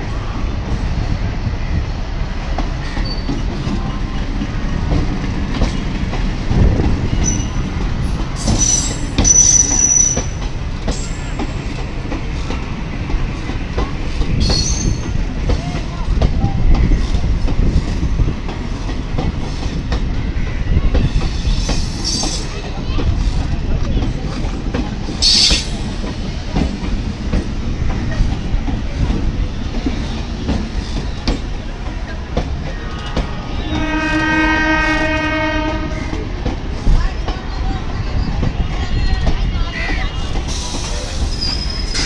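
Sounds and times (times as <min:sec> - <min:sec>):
train rumbling: 0:00.0 - 0:42.0
high-pitched wheel squeals: 0:08.4 - 0:10.4.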